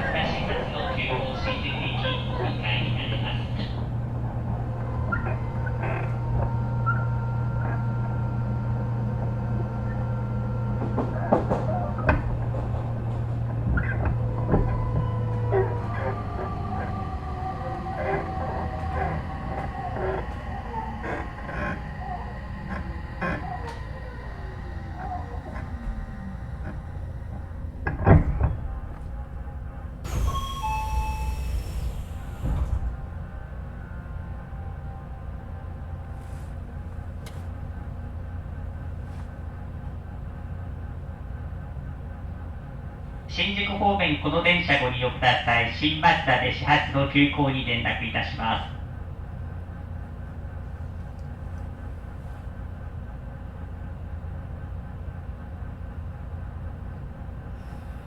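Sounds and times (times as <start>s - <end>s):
faint whining tones: 0.0s - 45.9s, 47.2s - 58.0s
train car low hum: 0.0s - 58.0s
falling electric motor tone: 13.6s - 33.4s
train door thud: 25.0s - 33.3s
door chime tones: 30.0s - 32.6s
air hiss of doors: 30.0s - 32.9s.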